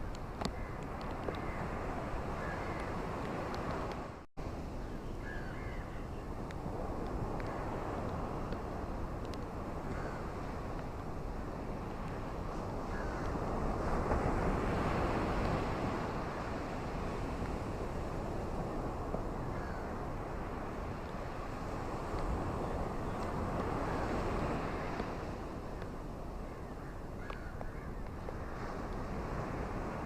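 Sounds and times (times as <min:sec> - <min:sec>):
ocean waves washing onto beach: 0:00.0 - 0:04.9, 0:05.6 - 0:30.0
wind across microphone: 0:00.0 - 0:30.0.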